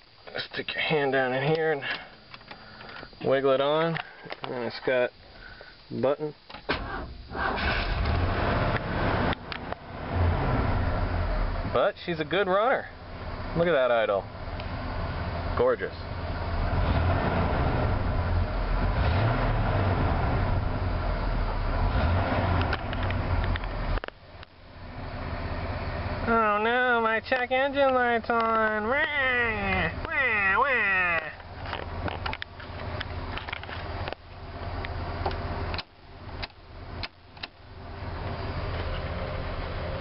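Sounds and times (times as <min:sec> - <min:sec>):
sharp clicks: 0:34.8 - 0:37.6.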